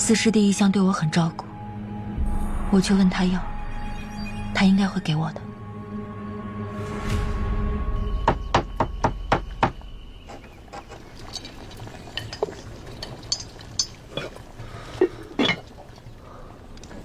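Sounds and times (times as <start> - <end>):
sharp knocks: 8.2 - 10.4.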